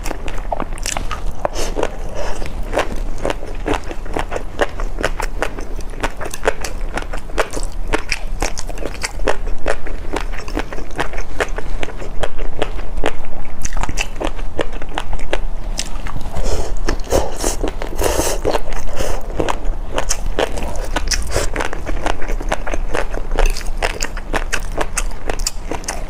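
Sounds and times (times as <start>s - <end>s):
crunchy food being chewed: 0.0s - 26.0s.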